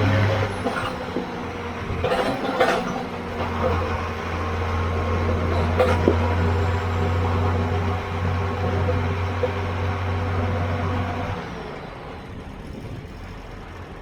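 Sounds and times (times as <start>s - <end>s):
machinery engine humming: 0.0s - 14.0s
sharp knocks and rattles: 0.4s - 4.2s, 5.0s - 9.8s.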